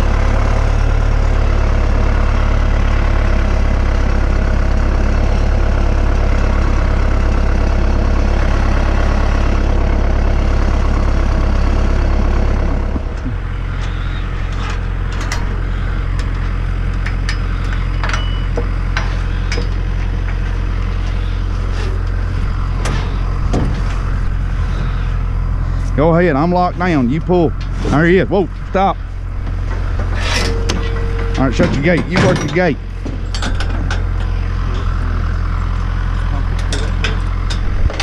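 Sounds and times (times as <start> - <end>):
tractor engine running: 0.0 - 38.0
sharp clicks and knocks: 29.4 - 35.0, 36.5 - 38.0.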